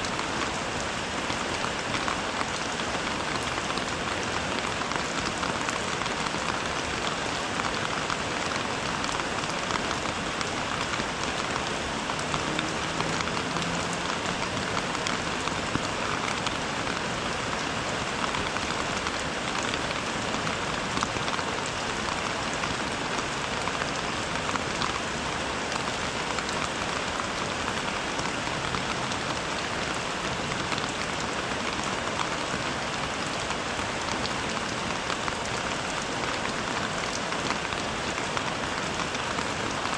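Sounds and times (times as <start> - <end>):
rain hissing: 0.0 - 24.3
sharp raindrop impacts: 7.6 - 19.9.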